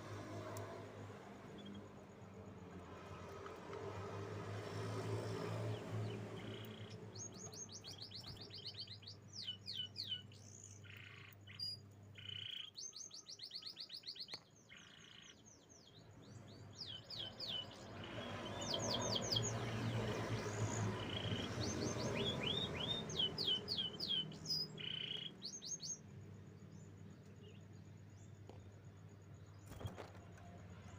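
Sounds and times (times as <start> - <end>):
canary singing trills: 6.0 - 28.3.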